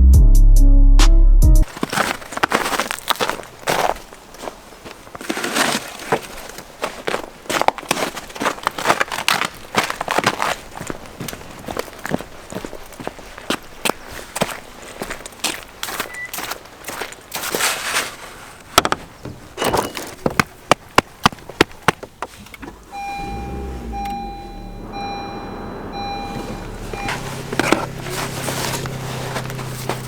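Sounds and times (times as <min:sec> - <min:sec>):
car engine cranking and idling: 0:22.0 - 0:30.0
warning chime beeping: 0:22.8 - 0:28.3.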